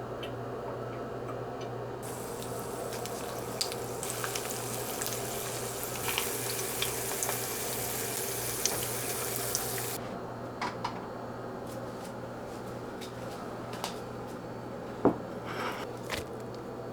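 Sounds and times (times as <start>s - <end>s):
tap running into sink: 2.0s - 10.0s.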